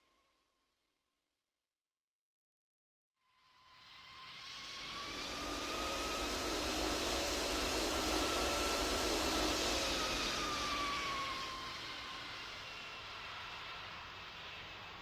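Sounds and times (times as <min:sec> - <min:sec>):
high engine whine: 0:04.8 - 0:13.2.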